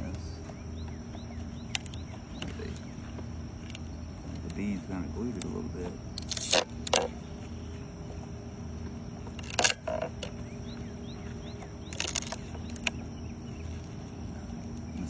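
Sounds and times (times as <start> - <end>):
honeybees buzzing: 0.0 - 15.0
sharp scraping cracks: 6.2 - 7.2, 11.6 - 13.0.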